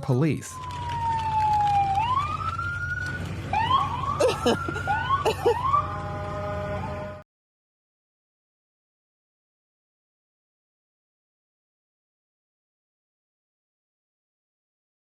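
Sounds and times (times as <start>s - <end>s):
police siren wailing and yelping: 0.5s - 7.2s.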